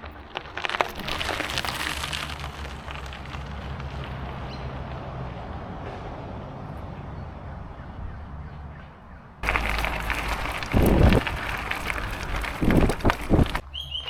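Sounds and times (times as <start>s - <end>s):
wind buffeting microphone: 9.4s - 13.6s.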